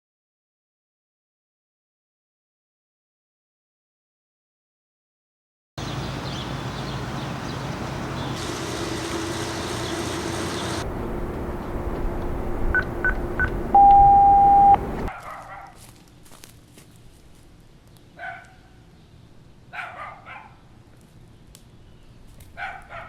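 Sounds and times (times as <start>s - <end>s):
long lower beep: 12.8s - 14.8s
short high beeps: 12.8s - 14.8s.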